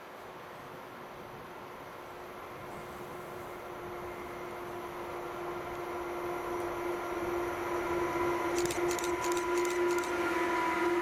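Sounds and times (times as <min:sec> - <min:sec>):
freight train passing: 0:00.0 - 0:11.0
electric locomotives humming: 0:02.1 - 0:11.0
sharp clicks: 0:08.6 - 0:10.2.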